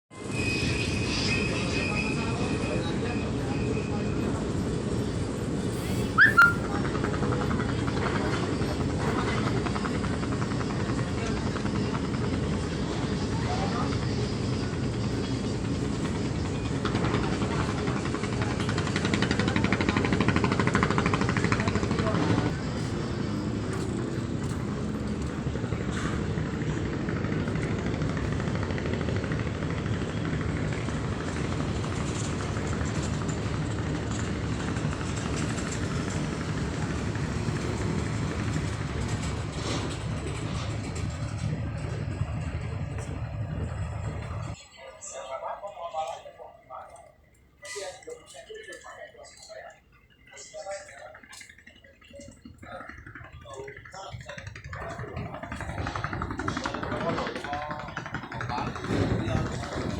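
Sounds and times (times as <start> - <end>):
boat engine droning: 0.2 - 59.9
rapid even clatter: 50.2 - 59.9.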